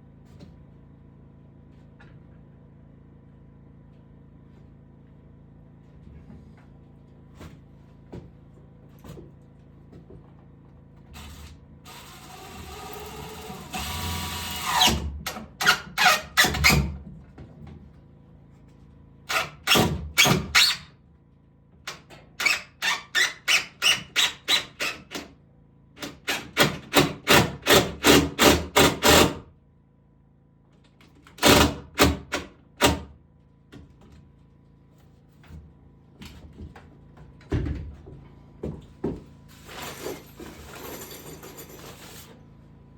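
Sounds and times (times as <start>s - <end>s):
woodworking power tool running: 11.2s - 15.2s.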